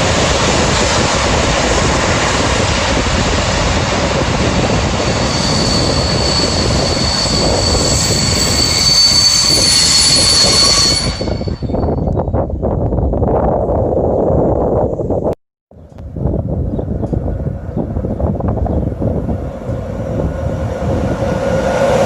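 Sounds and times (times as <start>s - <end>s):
train rolling past: 0.0s - 12.2s, 15.8s - 22.0s
high wheel squeal: 4.2s - 12.3s.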